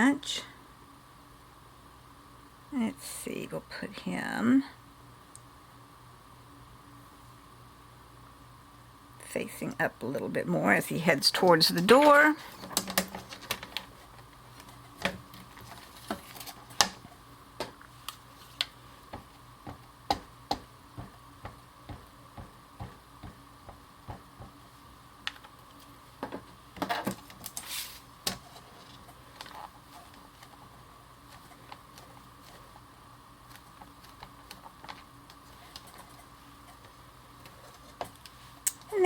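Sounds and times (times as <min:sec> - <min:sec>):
rustling: 0:11.9 - 0:19.9, 0:24.0 - 0:38.7.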